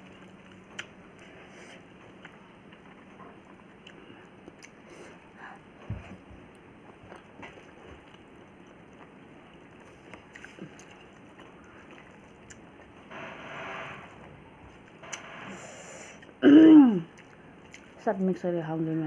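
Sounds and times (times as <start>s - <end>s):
chewing and squishing food: 0.0s - 13.1s, 17.0s - 19.0s.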